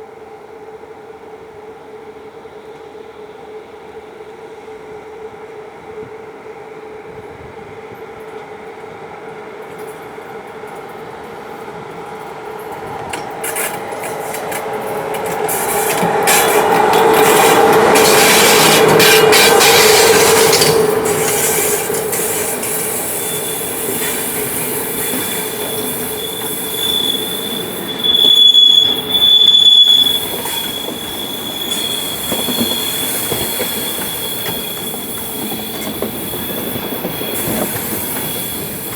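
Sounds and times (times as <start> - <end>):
train passing: 0.0 - 38.9
wheels clicking over rail joints: 12.6 - 38.9
high-pitched wheel squeal: 16.3 - 38.9.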